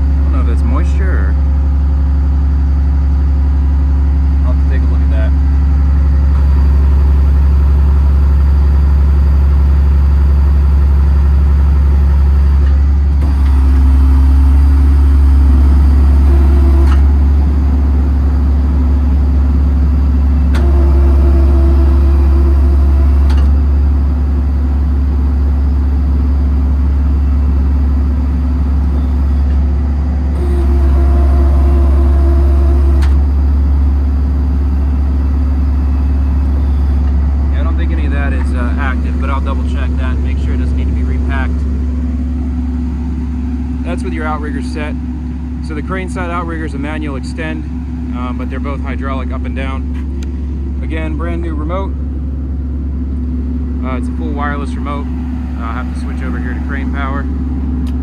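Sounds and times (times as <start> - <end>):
diesel engine idling: 0.0 - 58.0
hydraulic pump whine: 0.0 - 58.0
hydraulic system click: 16.8 - 17.2, 20.5 - 21.1, 23.2 - 23.6, 32.9 - 33.2, 57.8 - 58.0.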